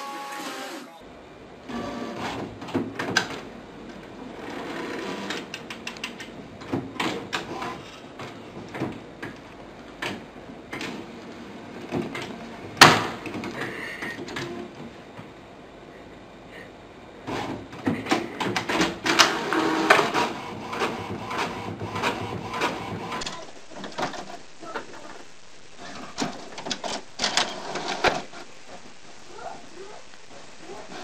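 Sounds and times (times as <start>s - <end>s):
printer whirring: 0.0s - 15.3s, 17.1s - 31.0s
clicks and rattling knocks: 25.8s - 28.9s.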